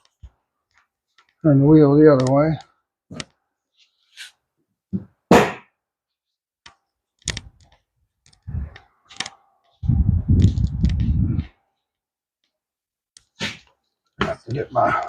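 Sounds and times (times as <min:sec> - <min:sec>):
low rattling rumble: 0:09.8 - 0:11.5.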